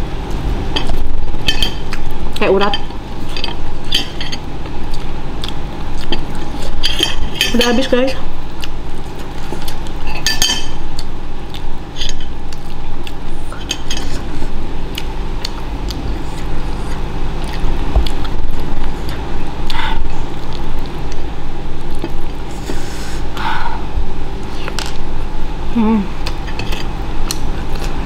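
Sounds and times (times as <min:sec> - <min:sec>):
person chewing wetly: 0:03.2 - 0:06.8, 0:08.5 - 0:10.2, 0:10.8 - 0:23.4.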